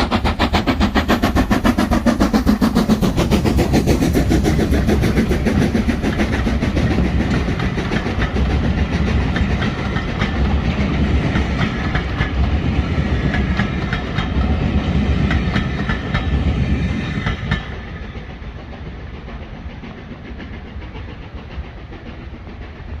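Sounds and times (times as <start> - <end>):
wheels clicking over rail joints: 0.0 - 16.4
steam train passing: 0.0 - 23.0.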